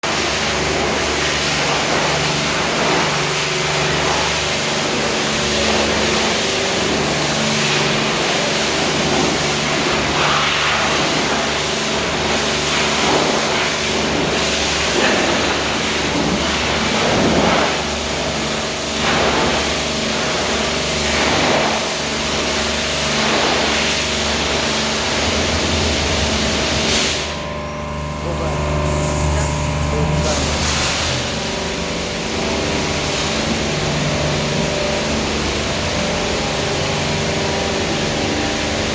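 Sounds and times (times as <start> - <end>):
mechanical hum: 0.0 - 38.9
water jets spraying: 0.0 - 38.9.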